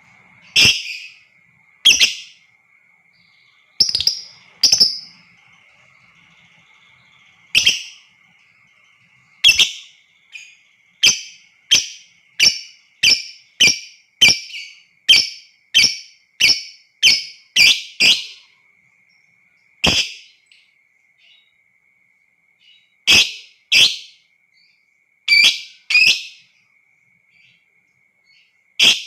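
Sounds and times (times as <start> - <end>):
lovebird shrill calls: 0.4 - 1.2, 1.8 - 2.4, 3.4 - 8.3, 9.4 - 18.4, 25.3 - 26.4, 28.8 - 29.0.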